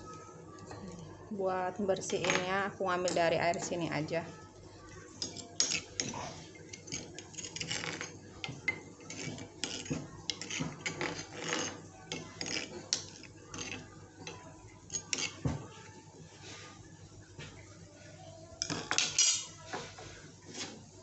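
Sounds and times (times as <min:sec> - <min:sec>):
utensils clinking against pot: 0:02.0 - 0:03.9, 0:05.2 - 0:15.6, 0:18.6 - 0:20.8.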